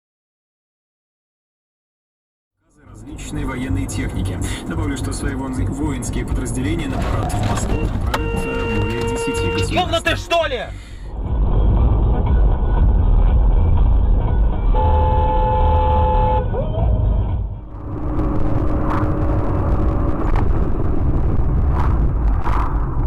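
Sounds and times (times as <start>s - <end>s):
car road and engine rumble: 2.6s - 23.0s
car horn: 7.4s - 10.6s, 14.7s - 16.7s.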